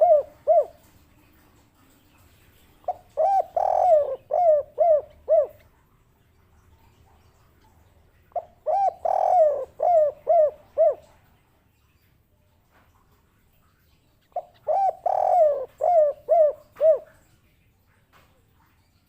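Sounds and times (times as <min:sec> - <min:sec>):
dove cooing: 0:00.0 - 0:01.4, 0:02.8 - 0:05.8, 0:08.3 - 0:11.2, 0:14.3 - 0:17.2.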